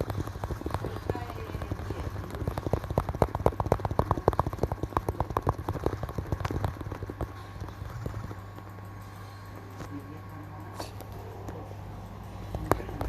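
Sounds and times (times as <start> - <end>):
fingers tapping on a surface: 0.0 - 8.9
low electrical hum: 0.0 - 13.0.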